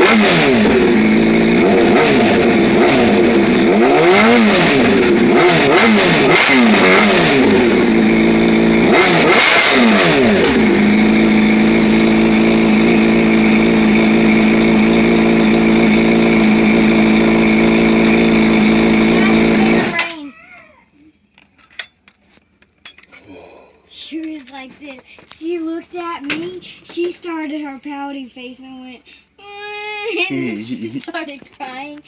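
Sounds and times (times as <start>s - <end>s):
motorcycle engine revving and idling: 0.0s - 20.2s.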